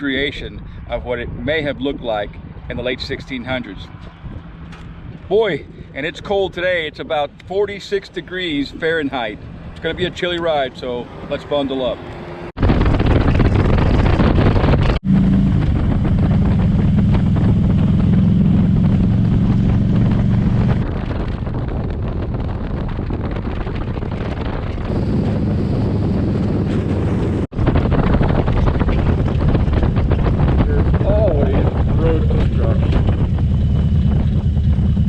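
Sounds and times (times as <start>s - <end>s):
motorcycle engine drone: 0.0s - 35.0s
wind rushing over microphone: 0.0s - 35.0s.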